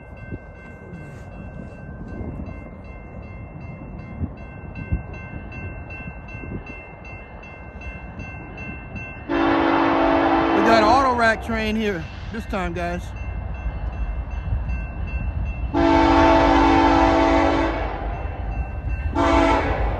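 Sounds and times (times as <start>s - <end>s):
freight train rumble: 0.0s - 19.9s
locomotive air horn: 9.3s - 11.0s, 15.7s - 18.1s, 19.1s - 19.9s.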